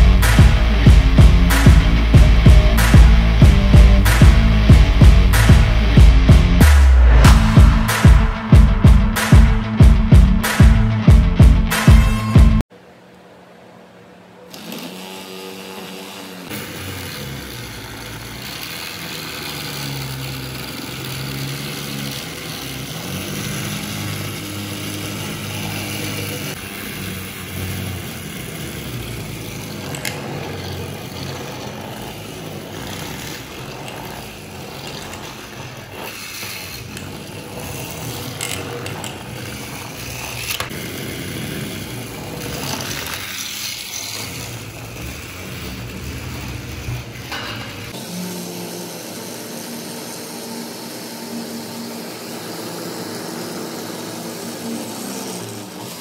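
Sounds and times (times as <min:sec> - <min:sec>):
small motor whirring: 0:14.4 - 0:56.0.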